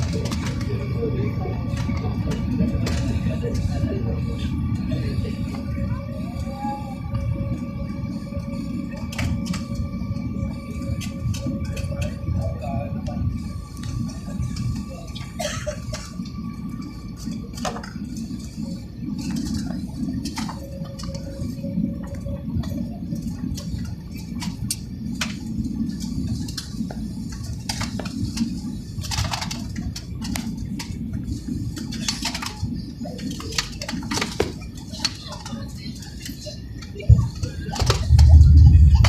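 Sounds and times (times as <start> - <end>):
airliner cabin rumble: 0.0 - 39.0.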